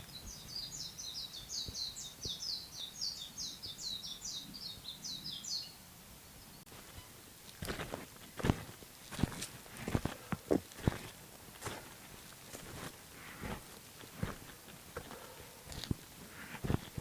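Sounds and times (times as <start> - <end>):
songbird singing: 0.0 - 17.0
footsteps: 6.7 - 17.0.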